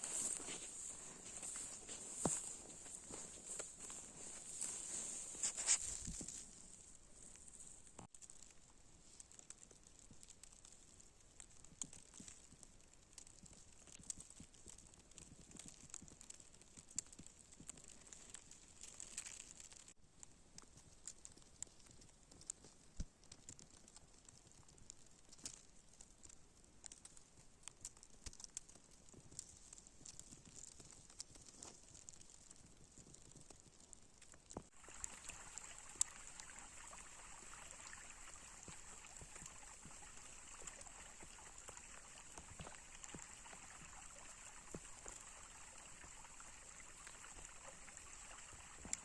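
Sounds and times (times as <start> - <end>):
footsteps crunching in snow: 0.0 - 7.0, 34.6 - 49.0
light hiss: 0.0 - 8.4, 34.6 - 49.0
soft ticks and crunches: 0.0 - 49.0.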